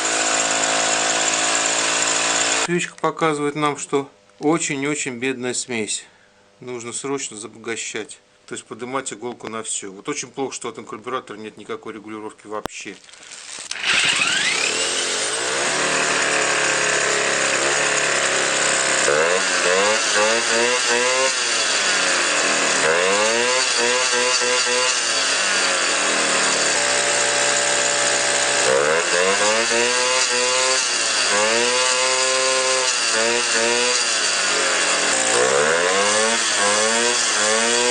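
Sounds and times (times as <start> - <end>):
two-stroke moped engine revving: 0.0 - 2.7, 13.6 - 37.9.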